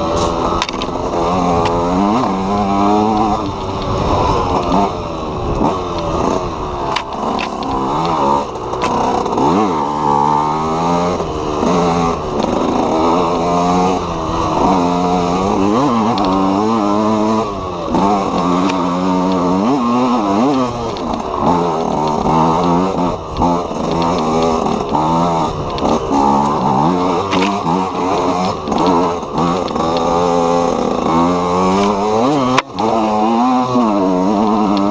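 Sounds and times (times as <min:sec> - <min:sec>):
two-stroke motorcycle engine revving: 0:00.0 - 0:34.9.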